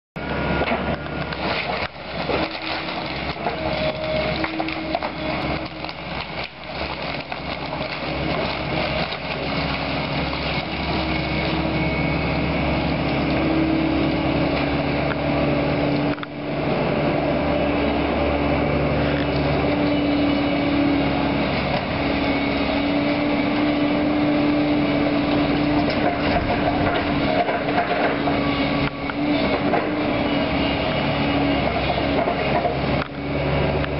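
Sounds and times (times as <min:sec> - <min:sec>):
excavator engine under load: 0:00.2 - 0:33.9
crunch and clatter of debris: 0:00.6 - 0:11.6, 0:25.3 - 0:30.0.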